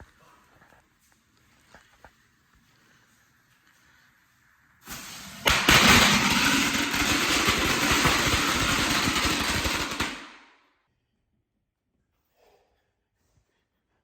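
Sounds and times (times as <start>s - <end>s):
firework hissing and crackling: 4.8s - 10.4s.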